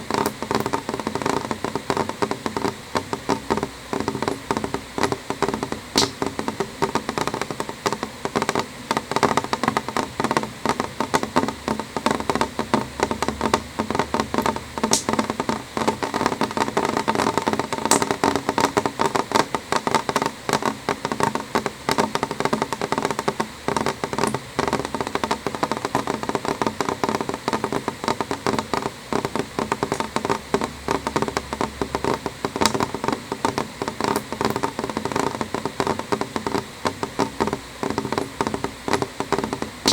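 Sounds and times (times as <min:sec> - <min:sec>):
rain drops tapping on glass: 0:00.0 - 0:39.9.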